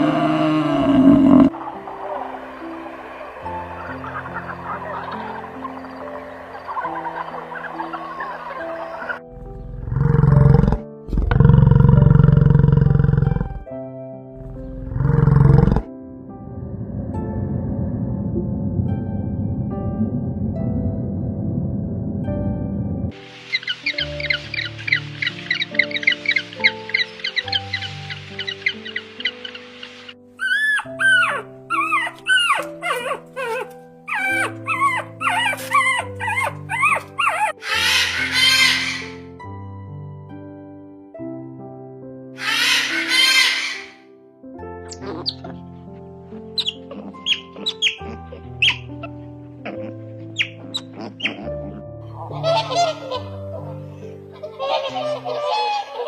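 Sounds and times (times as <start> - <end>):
big cat roaring: 0.0 - 1.6, 9.4 - 13.6, 14.4 - 15.9
animal crying: 0.0 - 5.9, 6.7 - 13.6, 14.4 - 15.8, 30.4 - 39.3, 42.4 - 44.0, 44.9 - 45.7, 46.5 - 56.0
background music with held notes: 0.0 - 56.0.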